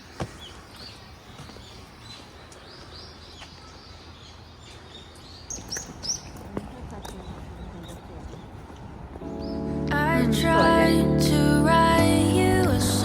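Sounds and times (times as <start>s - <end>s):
small birds chirping: 0.0s - 9.9s.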